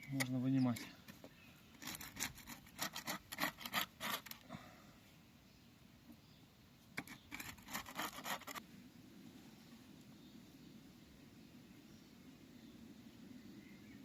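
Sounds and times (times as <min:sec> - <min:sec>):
plaster rubbing and scraping: 0:01.7 - 0:04.4, 0:07.0 - 0:08.6.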